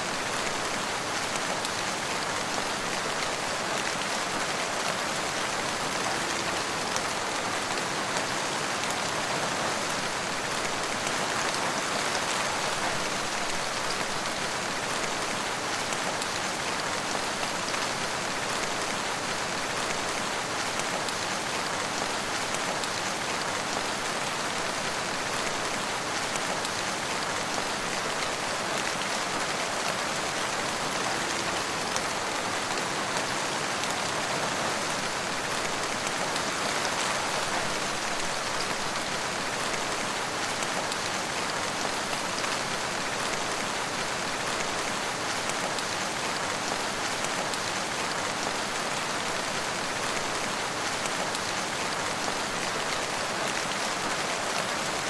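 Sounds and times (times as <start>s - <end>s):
rain spattering on surfaces: 0.0s - 55.0s.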